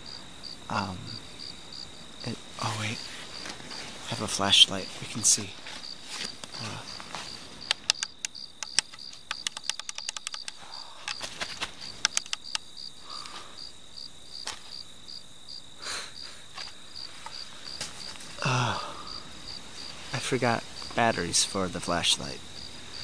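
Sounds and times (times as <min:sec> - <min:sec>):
crickets chirping: 0:00.0 - 0:23.0
flashlight switch clicking: 0:07.6 - 0:10.6.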